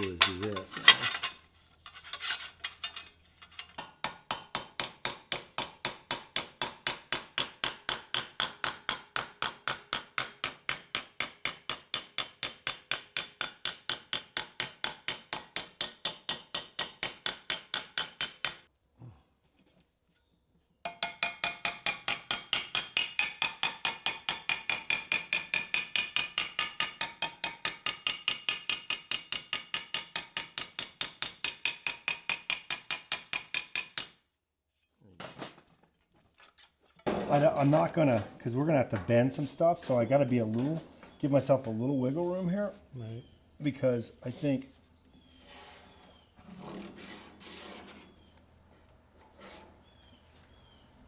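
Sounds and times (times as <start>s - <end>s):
hammer striking sheet steel: 3.8s - 18.6s, 20.9s - 34.2s.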